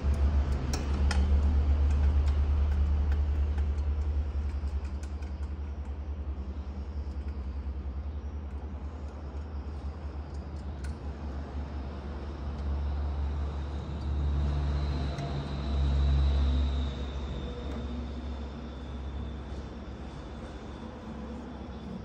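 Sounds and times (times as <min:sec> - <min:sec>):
low machine rumble with flutter: 0:00.0 - 0:22.0.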